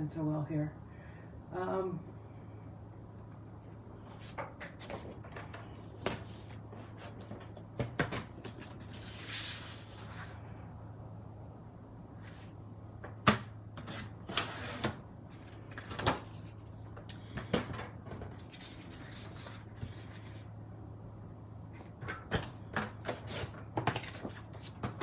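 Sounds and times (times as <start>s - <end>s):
steady low hum: 0.0s - 25.0s
paper rustle: 4.1s - 10.4s, 18.1s - 20.4s, 23.1s - 25.0s.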